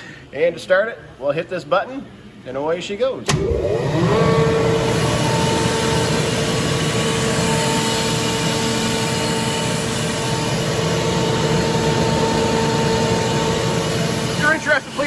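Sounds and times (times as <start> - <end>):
air compressor running with whine: 3.3 - 15.0.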